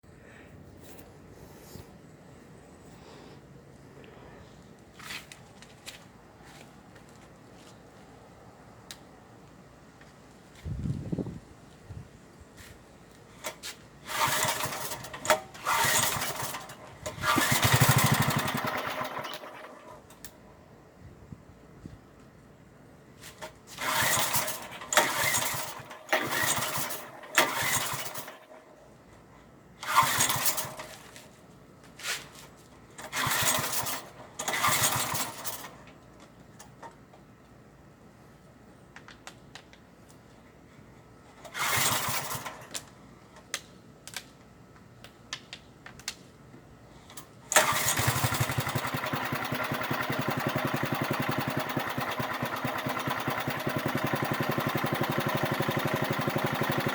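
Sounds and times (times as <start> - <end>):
small engine cranking: 13.4 - 20.2, 23.4 - 28.6, 29.8 - 31.1, 33.0 - 35.8, 41.4 - 42.9, 47.5 - 56.9
small engine running: 14.0 - 20.1, 23.7 - 28.6, 29.8 - 31.2, 33.0 - 35.8, 41.5 - 42.7, 47.5 - 56.9.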